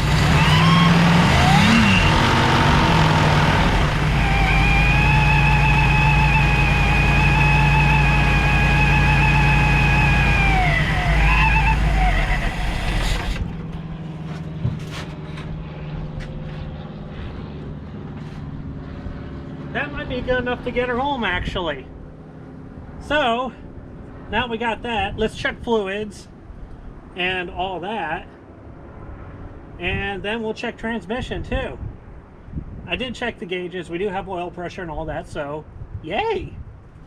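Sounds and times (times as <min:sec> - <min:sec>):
car engine running and idling: 0:00.0 - 0:16.6
supercharger high whine: 0:00.0 - 0:18.7.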